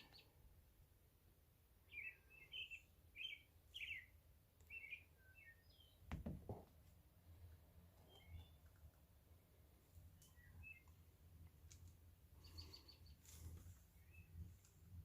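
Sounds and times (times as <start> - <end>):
faint bird chirping: 0.0 - 0.5, 1.8 - 6.1, 7.3 - 11.2, 12.2 - 14.8
dull knock: 6.1 - 6.7.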